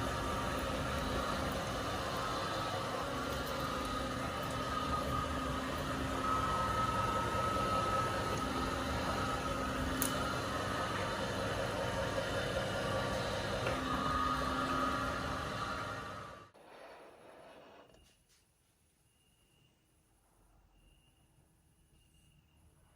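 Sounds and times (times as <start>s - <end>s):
meat grinder motor humming: 0.0s - 16.5s.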